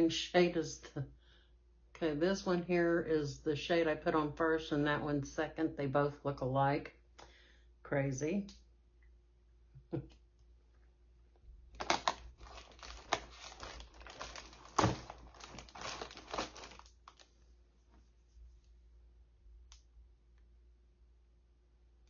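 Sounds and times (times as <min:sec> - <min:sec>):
plastic packaging crinkling: 0:11.7 - 0:17.4.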